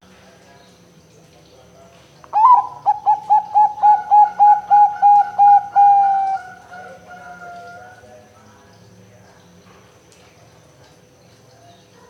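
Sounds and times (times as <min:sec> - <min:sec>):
dove cooing: 0:02.4 - 0:08.1.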